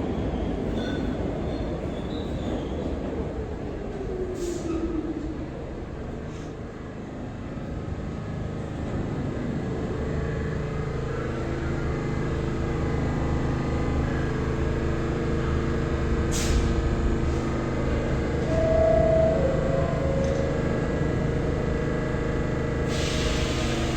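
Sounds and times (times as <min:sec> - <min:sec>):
subway train motor hum: 0:00.0 - 0:23.9
air hiss: 0:16.3 - 0:16.7, 0:22.9 - 0:23.9.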